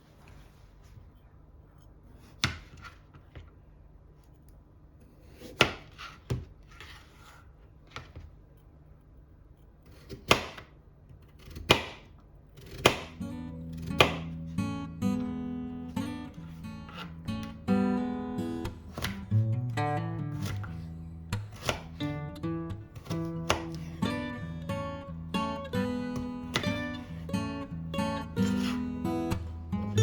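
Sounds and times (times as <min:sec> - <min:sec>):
knife chopping on cutting board: 0:02.2 - 0:03.0, 0:05.2 - 0:07.0, 0:09.9 - 0:13.2, 0:13.9 - 0:14.4, 0:18.6 - 0:19.2, 0:21.4 - 0:22.2, 0:23.0 - 0:23.9, 0:26.5 - 0:26.9
acoustic guitar music: 0:13.1 - 0:30.0.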